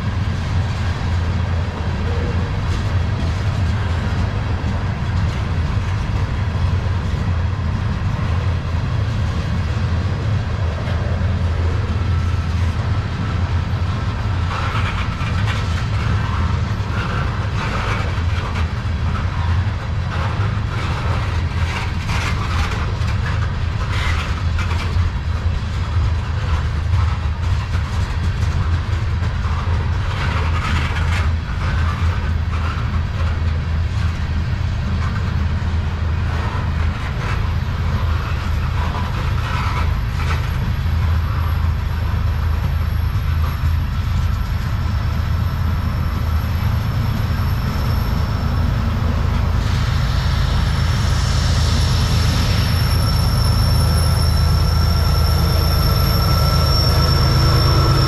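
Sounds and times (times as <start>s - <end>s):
diesel locomotive: 0.0s - 58.0s
steel wheels rumbling on rail: 0.0s - 58.0s
clicks from rail joints: 14.4s - 35.4s, 36.3s - 44.8s
high wheel squeal: 36.4s - 58.0s.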